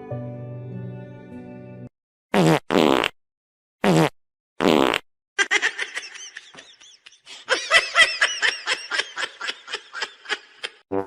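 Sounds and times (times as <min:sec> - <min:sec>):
fart-like blasts: 0:02.3 - 0:03.2, 0:03.8 - 0:05.0
person laughing: 0:05.4 - 0:10.8.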